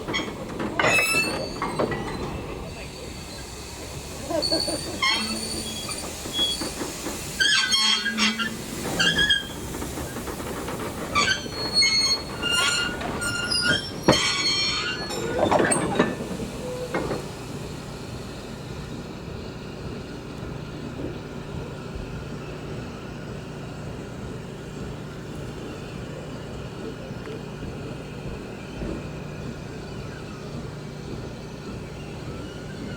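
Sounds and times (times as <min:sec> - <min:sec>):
train wheels squealing: 0:00.0 - 0:19.1, 0:28.0 - 0:32.9
train running rumble: 0:00.0 - 0:32.9.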